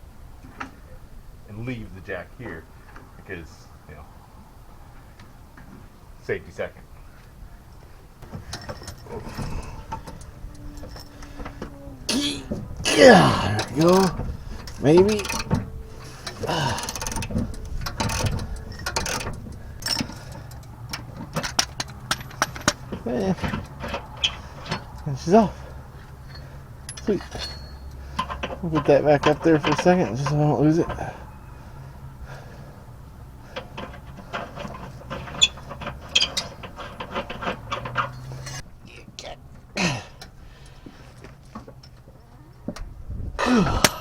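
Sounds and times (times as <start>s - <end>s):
metal clacks: 8.2s - 31.0s, 33.5s - 38.6s.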